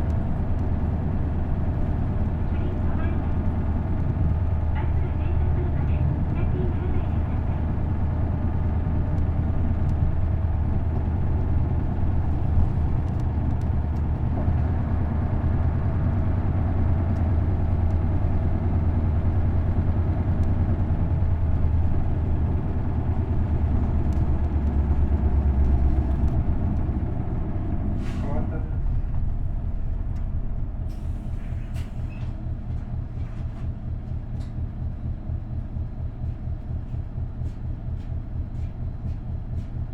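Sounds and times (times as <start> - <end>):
bus diesel engine humming: 0.0 - 39.9.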